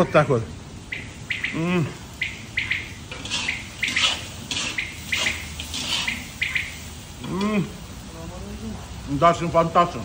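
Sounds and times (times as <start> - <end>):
small birds chirping: 0.0 - 7.6
man humming mmm: 1.6 - 2.0.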